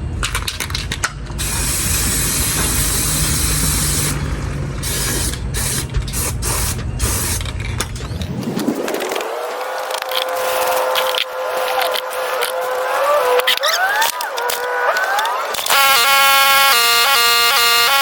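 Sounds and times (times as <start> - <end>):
aerosol spray hissing: 1.4 - 4.2, 4.8 - 7.4.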